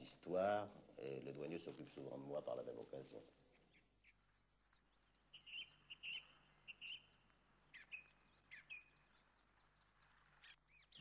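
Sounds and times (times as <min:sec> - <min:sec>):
small birds chirping: 0:02.9 - 0:11.0.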